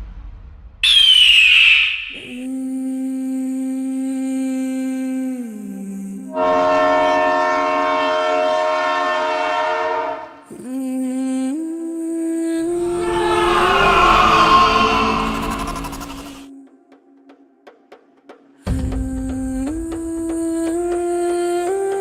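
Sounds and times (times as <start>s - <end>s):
long horn blasts: 6.3s - 10.5s.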